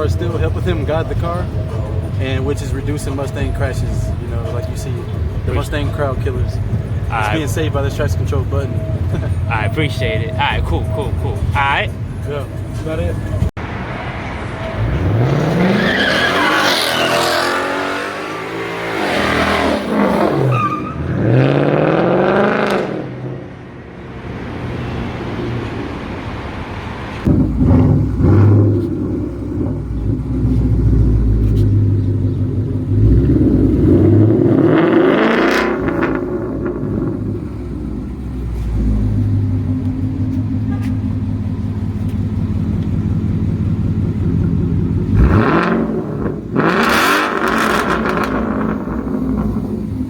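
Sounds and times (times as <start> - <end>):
loud engine revving: 14.8 - 23.4, 27.3 - 39.8, 44.0 - 50.0.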